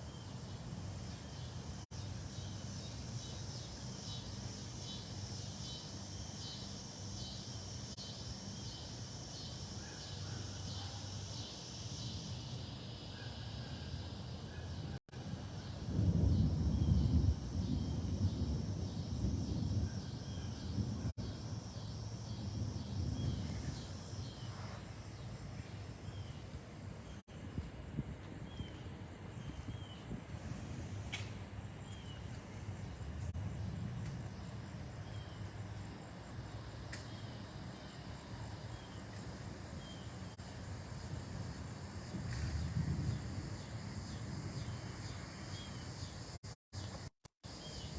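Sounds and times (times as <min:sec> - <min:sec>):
wind gusts buffeting microphone: 0:15.2 - 0:25.0, 0:27.5 - 0:35.0, 0:40.6 - 0:46.0.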